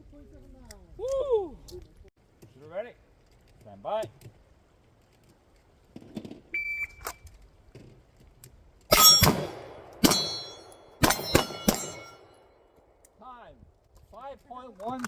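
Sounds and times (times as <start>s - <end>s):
pistol shots: 8.9s - 12.4s
steel targets ringing: 8.9s - 12.5s.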